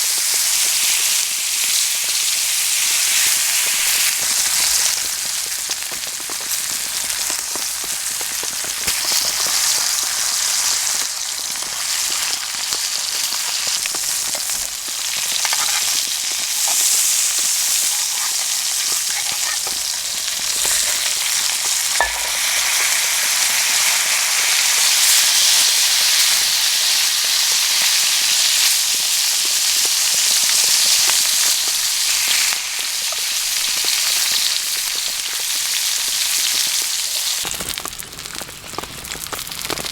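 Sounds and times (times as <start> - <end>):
steak sizzling in a pan: 0.0 - 39.9
fire crackling: 3.3 - 24.3, 37.4 - 39.9.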